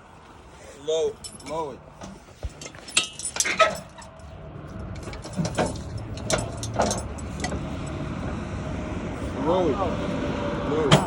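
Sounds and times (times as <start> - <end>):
sharp metallic clanks: 1.2 - 7.6
low motor hum: 3.8 - 11.0.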